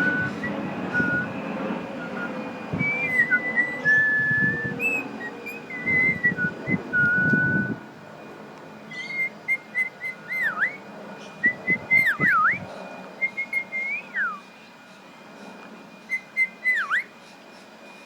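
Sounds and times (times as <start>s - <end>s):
person whistling: 2.0s - 7.8s.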